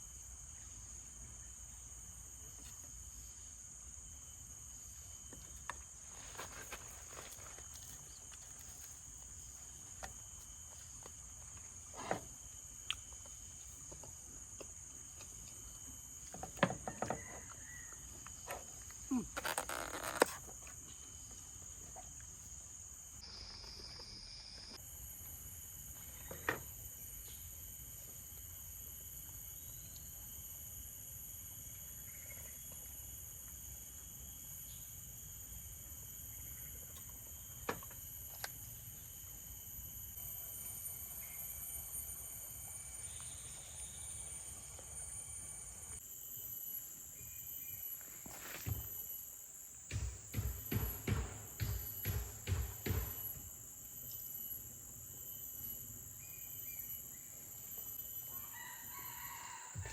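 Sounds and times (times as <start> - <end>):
insect chorus: 0.0 - 59.9
knocks and rustles: 49.8 - 53.6.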